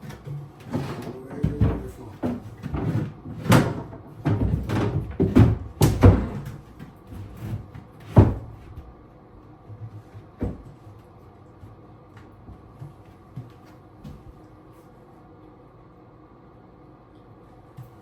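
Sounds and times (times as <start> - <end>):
wooden cabinet knocking and thudding: 0.0 - 8.9, 10.4 - 10.8.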